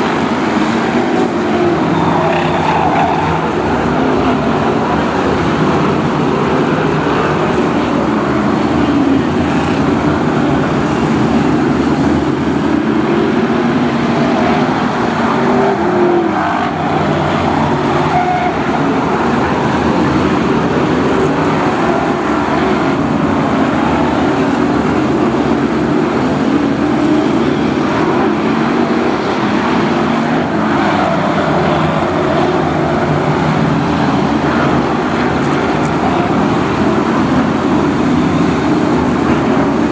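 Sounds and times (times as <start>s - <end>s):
racing car engines passing: 0.0s - 39.9s.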